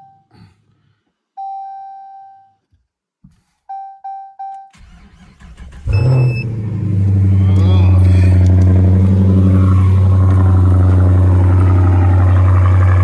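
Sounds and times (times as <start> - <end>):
starter cranking rumble: 4.8 - 13.0
dashboard warning chime: 5.8 - 6.9.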